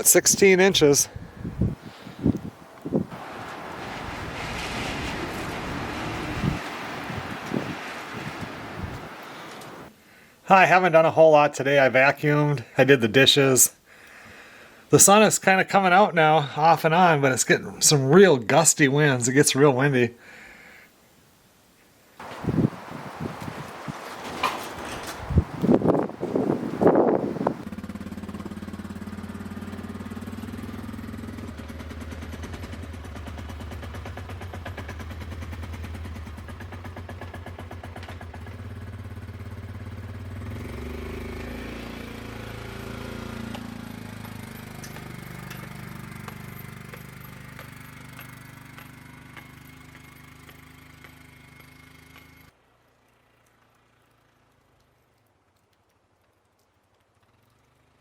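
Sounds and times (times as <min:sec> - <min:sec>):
atv engine running: 0:24.8 - 0:52.6.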